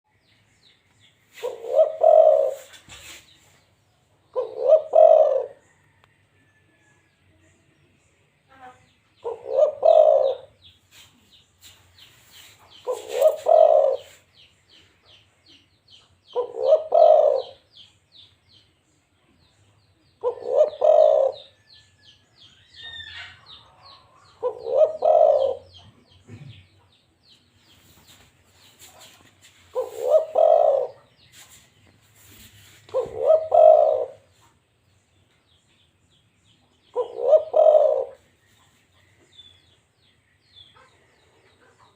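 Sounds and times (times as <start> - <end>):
dove cooing: 1.4 - 2.8, 4.3 - 5.7, 9.2 - 10.6, 12.8 - 14.2, 16.4 - 17.8, 20.2 - 21.6, 24.4 - 26.6, 29.7 - 31.1, 32.9 - 34.3, 36.9 - 38.3
small birds trilling: 7.8 - 41.9.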